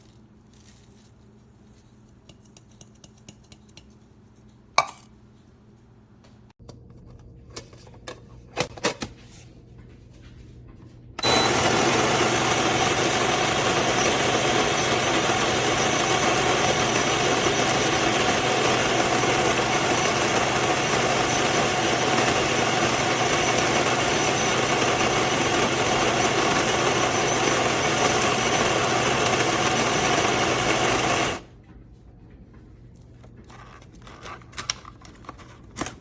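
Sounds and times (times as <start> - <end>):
coffee grinder whirring: 11.2 - 31.5.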